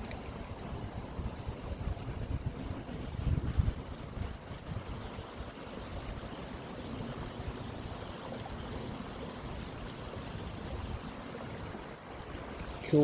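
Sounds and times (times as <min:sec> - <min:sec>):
stream water rushing and babbling: 0:00.0 - 0:13.0.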